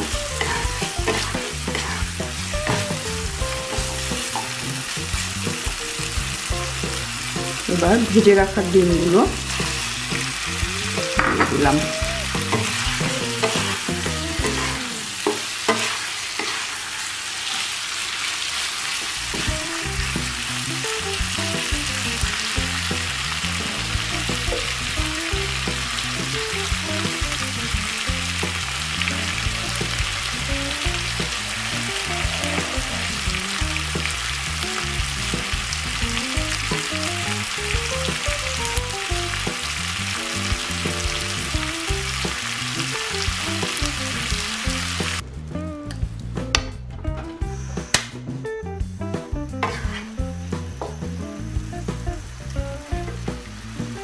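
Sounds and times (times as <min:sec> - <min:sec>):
wooden spatula knocking pan: 0:00.0 - 0:07.7, 0:09.4 - 0:16.0
soft melody: 0:00.0 - 0:15.1, 0:19.4 - 0:47.8
food sizzling in hot oil: 0:00.0 - 0:45.2, 0:49.6 - 0:54.0.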